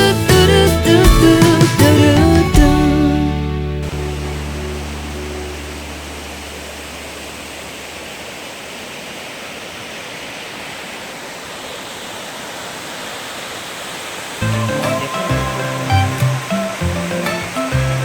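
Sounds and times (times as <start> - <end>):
music track: 0.0 - 6.5, 14.4 - 18.0
steady rushing noise: 3.8 - 18.0.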